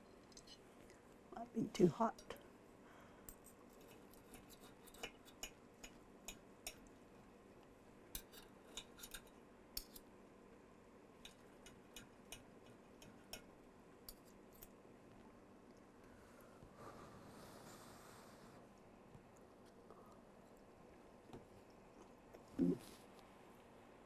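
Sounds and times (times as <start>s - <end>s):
low room hum: 0.0s - 24.0s
cutlery clicking on plate: 3.3s - 6.9s, 8.2s - 10.0s, 11.2s - 13.5s.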